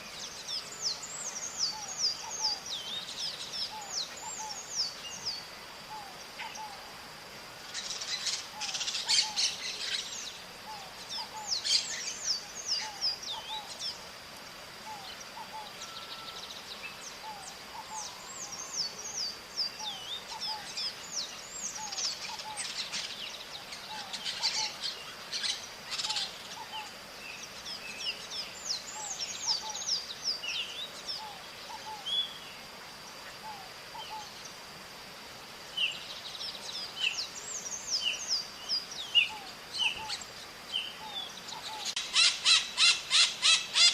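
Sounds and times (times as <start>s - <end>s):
parrots calling: 41.1s - 43.9s.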